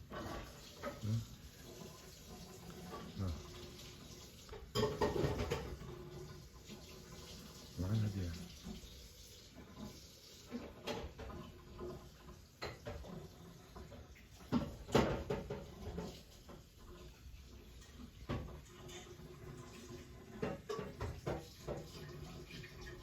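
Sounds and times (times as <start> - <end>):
household knocks and clatter: 4.6 - 6.1, 12.6 - 16.6, 20.3 - 22.1.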